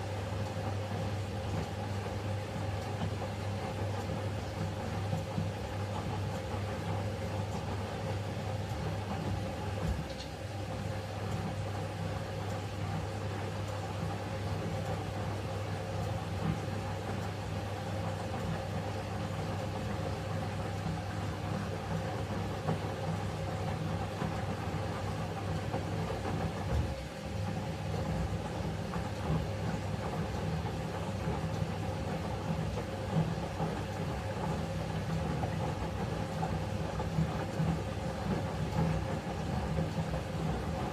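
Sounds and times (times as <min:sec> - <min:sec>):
washing machine humming: 0:00.0 - 0:40.9.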